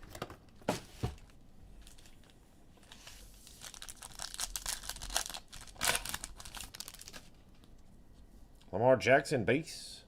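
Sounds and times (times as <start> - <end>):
foil wrapper crinkling and tearing: 2.9 - 7.3.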